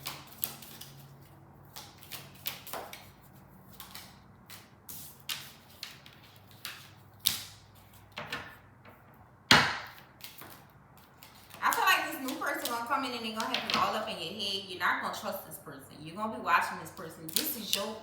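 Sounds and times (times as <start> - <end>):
cards slapping and rustling: 0.0 - 8.6, 9.6 - 13.8.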